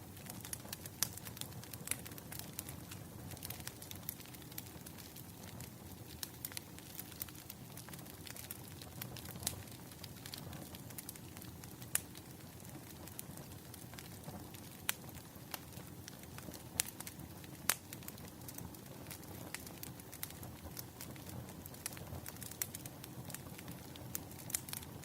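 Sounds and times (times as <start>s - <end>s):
burning firewood crackling: 0.0s - 25.0s.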